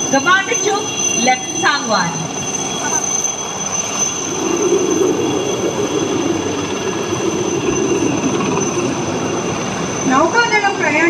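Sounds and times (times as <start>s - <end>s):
helicopters flying past: 0.0s - 11.0s.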